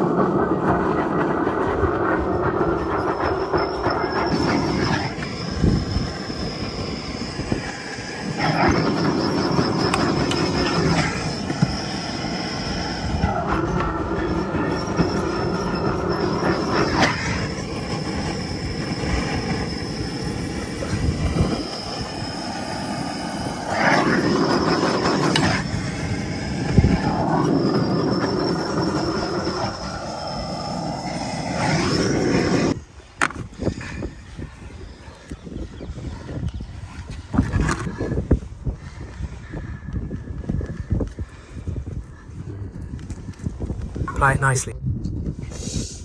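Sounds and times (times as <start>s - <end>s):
heating tool rushing: 1.9s - 38.4s.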